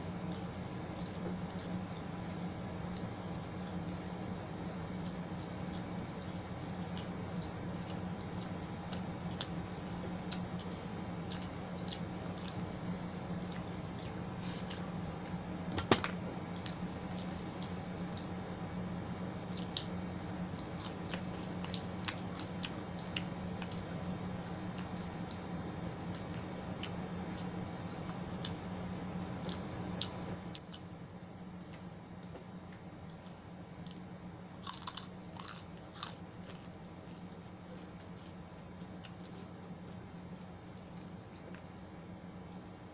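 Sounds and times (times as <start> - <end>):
steady background hum: 0.0 - 42.9.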